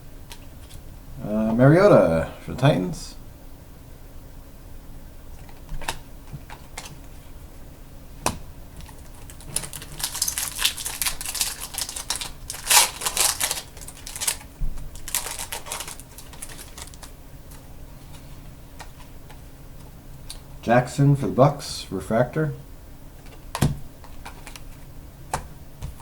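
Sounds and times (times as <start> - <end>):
pack wrappers crinkling: 8.8 - 17.2.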